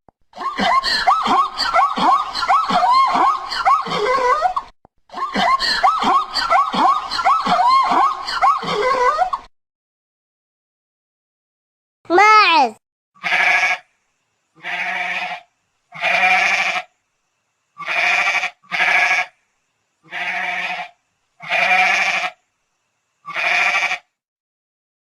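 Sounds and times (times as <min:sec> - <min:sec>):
goat bleating: 0:13.2 - 0:13.8, 0:14.6 - 0:16.9, 0:17.8 - 0:19.3, 0:20.1 - 0:22.3, 0:23.3 - 0:24.1.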